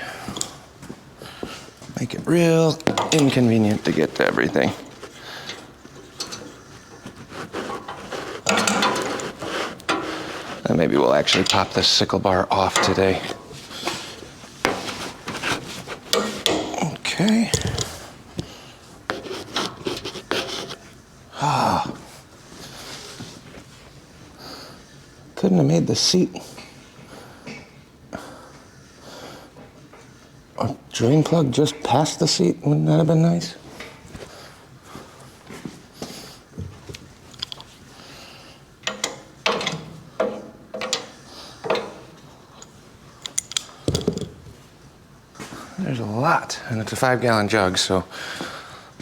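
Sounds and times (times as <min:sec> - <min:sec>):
hand tools clanking on metal: 0:02.0 - 0:20.7, 0:38.8 - 0:44.3
parts clicking and knocking: 0:02.7 - 0:20.8, 0:36.6 - 0:37.8, 0:38.8 - 0:44.6.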